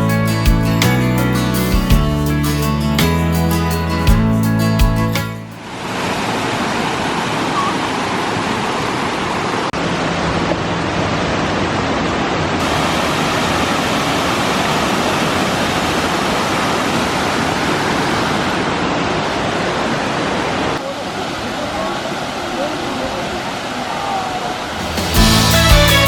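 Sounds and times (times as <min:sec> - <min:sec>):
waterfall rushing: 0:05.6 - 0:26.0.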